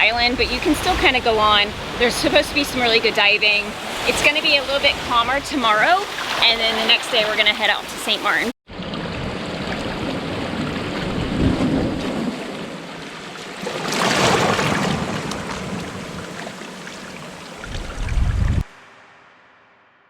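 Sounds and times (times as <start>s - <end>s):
wind on microphone: 0.0s - 6.0s, 8.7s - 12.9s, 17.5s - 18.7s
water splashing against hull: 0.0s - 18.7s.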